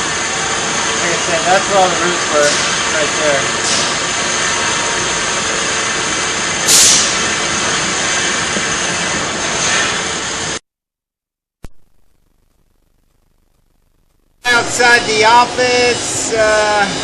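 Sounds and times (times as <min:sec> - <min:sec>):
engine and pump whining: 0:00.0 - 0:10.6, 0:14.5 - 0:17.0.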